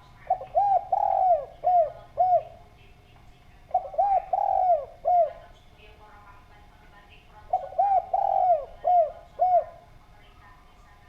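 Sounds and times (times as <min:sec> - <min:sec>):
dove cooing: 0:00.0 - 0:02.8, 0:03.6 - 0:05.6, 0:07.3 - 0:10.0.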